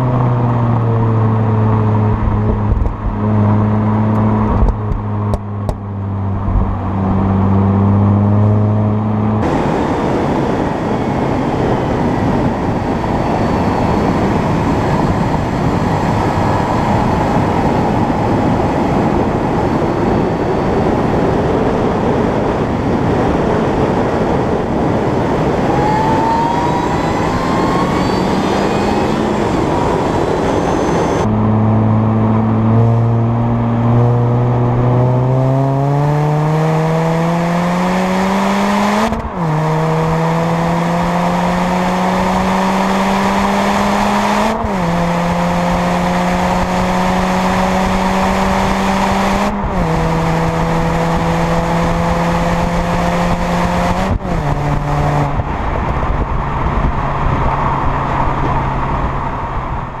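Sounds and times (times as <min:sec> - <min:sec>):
car engine accelerating: 0:00.0 - 1:00.0
wind noise on microphone: 0:00.0 - 1:00.0.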